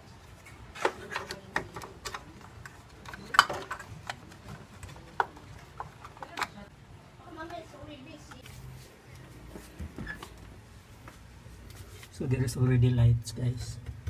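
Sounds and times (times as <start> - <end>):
plastic and metal parts clicking: 0.8 - 6.7.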